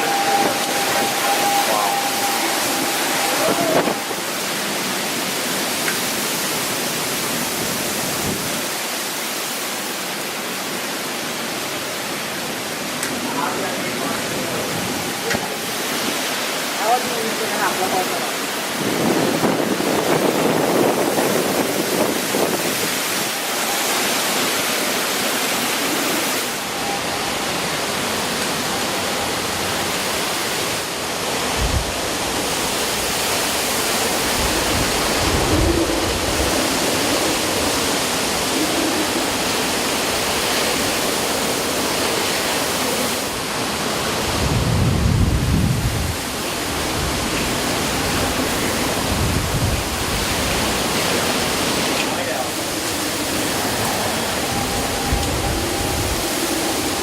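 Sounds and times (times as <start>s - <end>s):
wind buffeting microphone: 0.0s - 5.5s, 7.5s - 8.7s, 18.6s - 23.4s, 31.3s - 41.2s, 43.4s - 57.0s
howling wind and driving rain: 0.0s - 57.0s.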